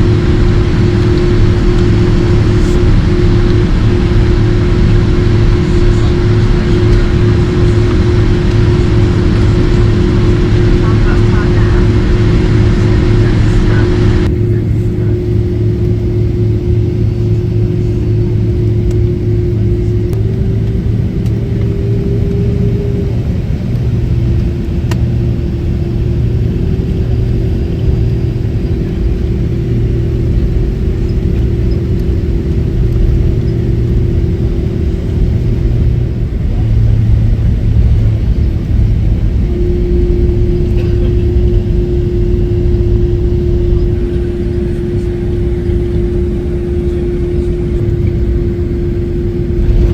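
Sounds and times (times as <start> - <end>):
airplane cabin rumble: 0.0 - 49.9
jet engine hum: 0.0 - 49.9.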